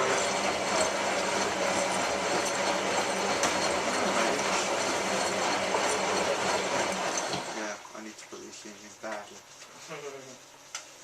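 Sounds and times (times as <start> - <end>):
washing machine drum turning: 0.0 - 7.6.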